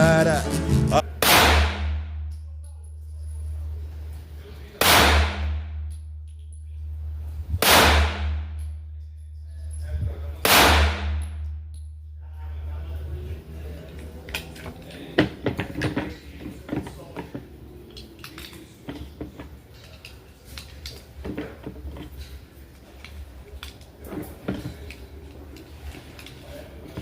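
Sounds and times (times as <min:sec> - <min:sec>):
steady low hum: 0:00.0 - 0:27.0
metallic clicks and clatter: 0:05.8 - 0:07.0, 0:13.9 - 0:27.0.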